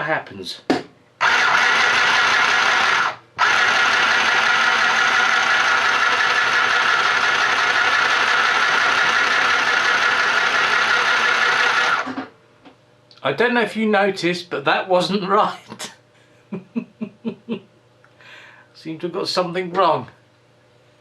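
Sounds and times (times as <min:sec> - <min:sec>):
sewing machine whirring: 0:01.2 - 0:12.3.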